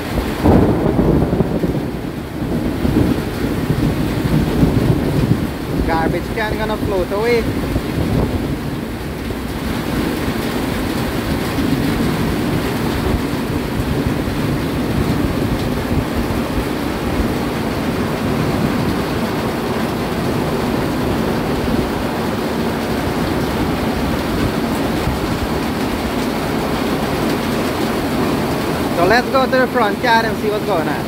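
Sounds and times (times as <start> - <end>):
heavy rain pouring: 0.0 - 31.0
wind rumbling on microphone: 0.0 - 31.0.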